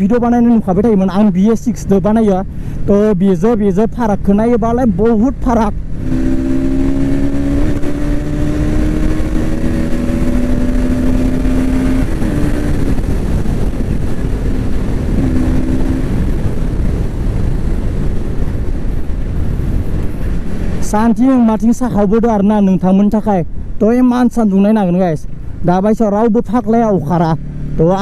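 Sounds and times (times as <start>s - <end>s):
rush of wind noise: 0.0s - 28.0s
motorcycle engine running: 4.2s - 21.2s.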